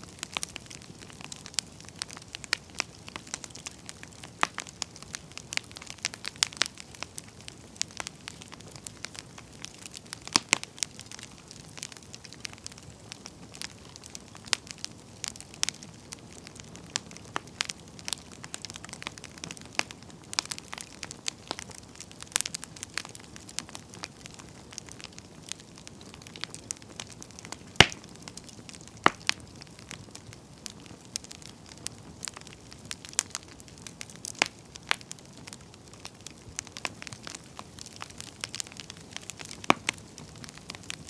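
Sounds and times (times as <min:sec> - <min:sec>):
campfire crackling and popping: 0:00.0 - 0:41.0
faint steady hiss: 0:00.0 - 0:41.0.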